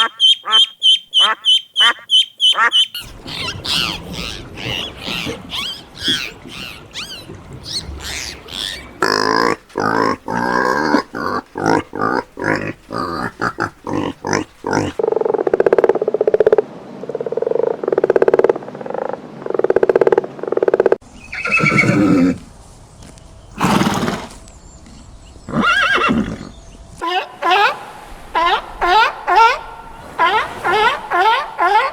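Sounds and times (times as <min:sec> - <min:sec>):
pulsed buzzy calls: 0:00.0 - 0:15.1, 0:27.0 - 0:31.9
horse whinnying: 0:21.3 - 0:22.4, 0:25.5 - 0:26.5.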